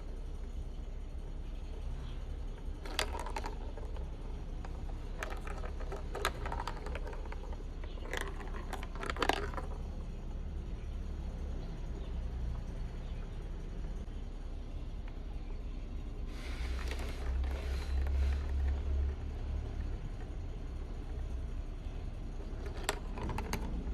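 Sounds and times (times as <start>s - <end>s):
steady low hum: 0.0s - 23.9s
marbles rattling along plastic track: 2.5s - 10.5s, 16.3s - 23.9s.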